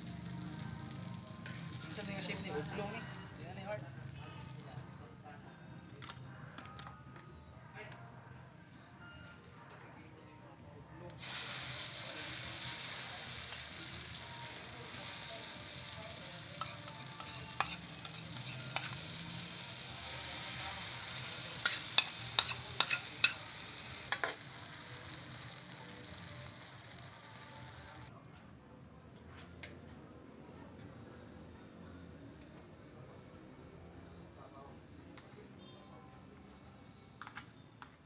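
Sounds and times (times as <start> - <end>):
eggplant sizzling in oil: 0.0 - 5.0, 11.2 - 28.1
utensil clicking against pan: 21.6 - 23.4.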